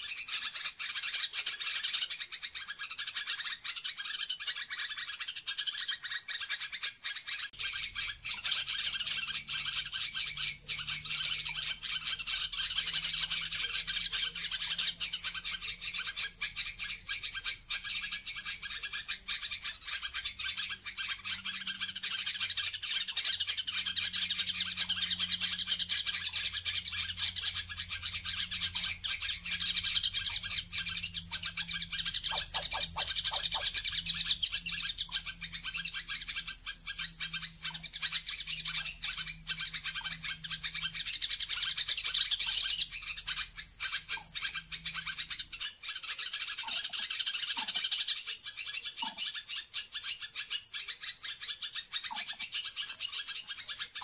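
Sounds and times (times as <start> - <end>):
birds chirping and trilling: 0.0 - 54.0
faint low hum: 7.6 - 45.7.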